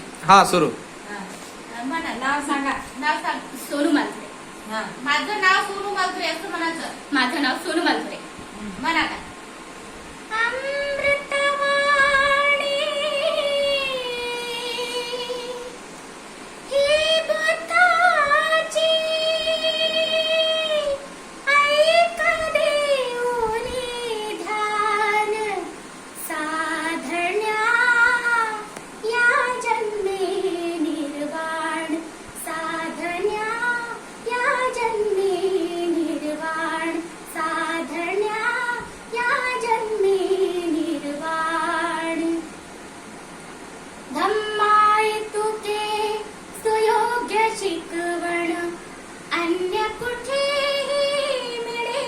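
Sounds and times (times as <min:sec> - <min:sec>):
girl singing unaccompanied: 0:10.2 - 0:42.9, 0:44.0 - 0:52.0.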